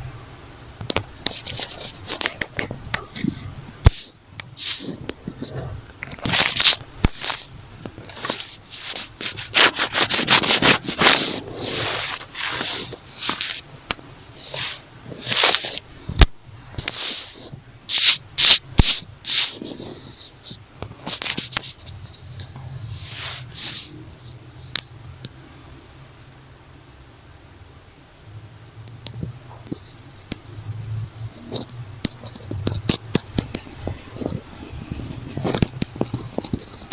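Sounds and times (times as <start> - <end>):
scratching and rubbing on notebook: 1.2 - 25.0, 29.2 - 36.9.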